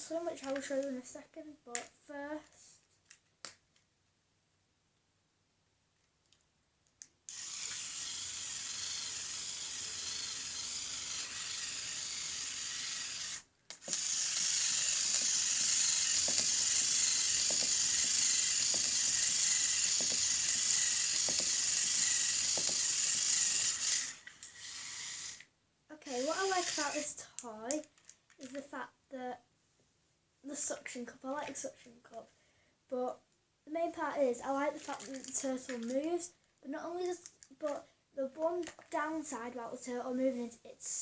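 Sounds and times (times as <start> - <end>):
toy motor and gears whirring: 7.3 - 28.6, 34.8 - 36.3.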